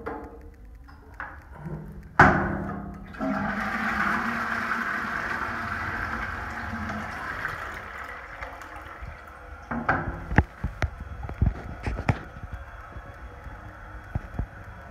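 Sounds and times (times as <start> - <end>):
sharp clicks and knocks: 0.0 - 3.2
toilet flushing: 3.0 - 10.8.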